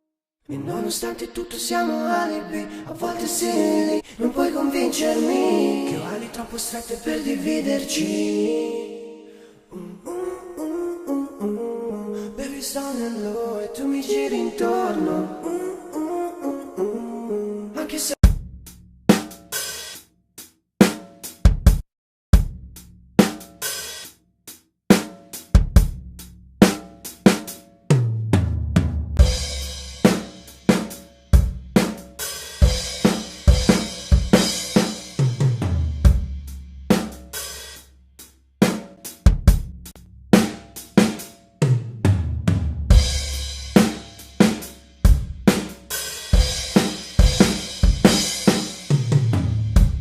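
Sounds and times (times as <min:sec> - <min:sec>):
drum kit beat: 0:18.2 - 0:50.0.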